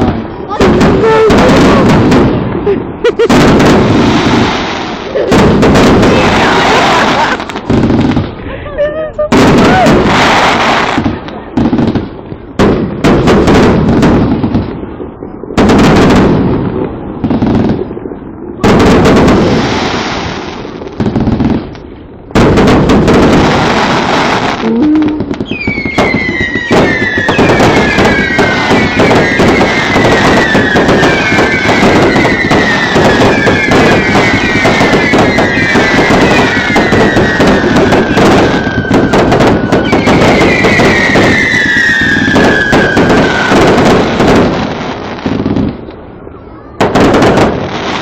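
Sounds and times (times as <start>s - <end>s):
firework shells bursting: 0.0s - 8.4s, 18.6s - 45.9s
crackling firework barrage: 0.0s - 48.0s
whistling fireworks: 0.0s - 48.0s.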